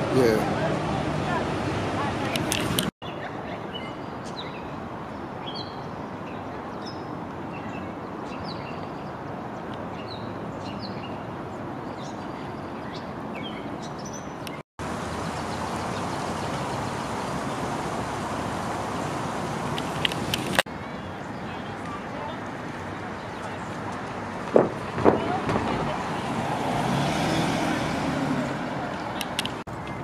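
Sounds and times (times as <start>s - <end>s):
birds chirping: 2.3s - 23.8s, 25.1s - 30.0s
steady rushing background noise: 14.5s - 25.8s.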